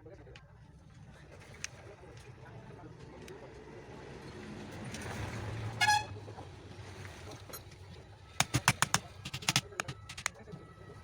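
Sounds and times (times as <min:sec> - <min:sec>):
vehicle horn toot: 0:05.8 - 0:06.2
sharp clicks or knocks: 0:08.4 - 0:10.3.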